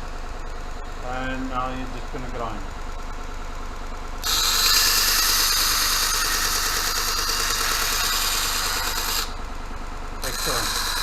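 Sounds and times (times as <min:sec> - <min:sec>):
grinder motor hum: 0:00.0 - 0:11.0
knife grinding on abrasive belt: 0:04.2 - 0:09.4, 0:10.2 - 0:11.0.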